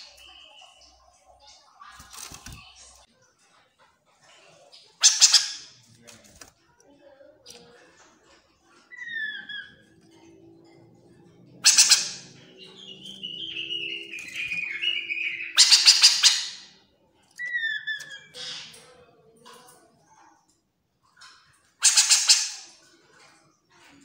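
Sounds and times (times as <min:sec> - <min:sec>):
harsh rattling bird chatter: 0:00.0 - 0:03.1, 0:04.4 - 0:05.9, 0:10.8 - 0:20.2, 0:21.1 - 0:24.0
descending bird notes: 0:08.9 - 0:18.8.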